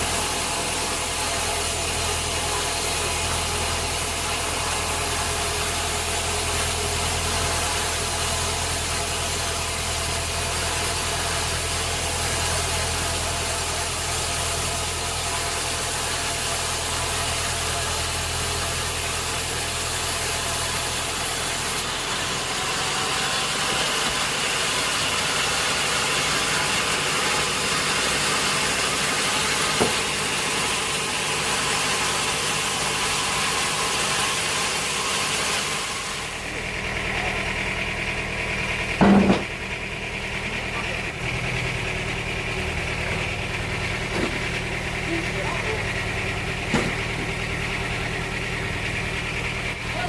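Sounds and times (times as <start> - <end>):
motor hum: 0.0 - 50.0
sawmill machinery hissing: 0.0 - 50.0
loud knock: 39.0 - 39.5.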